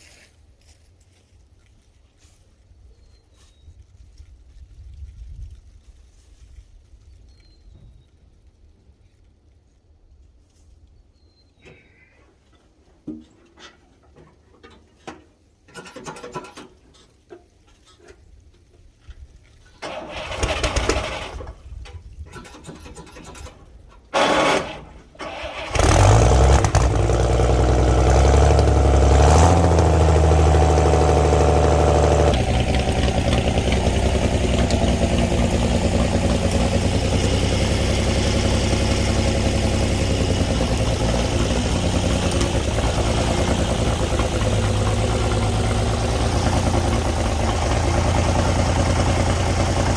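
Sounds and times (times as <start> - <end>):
truck engine starting and running: 13.6 - 17.0, 19.8 - 49.9.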